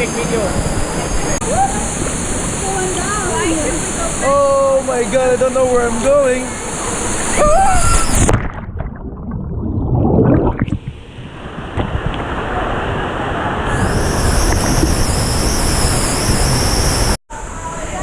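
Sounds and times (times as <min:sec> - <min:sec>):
water rushing: 0:00.0 - 0:17.2
splash into water: 0:07.2 - 0:10.9
muffled underwater gurgling: 0:08.2 - 0:11.0.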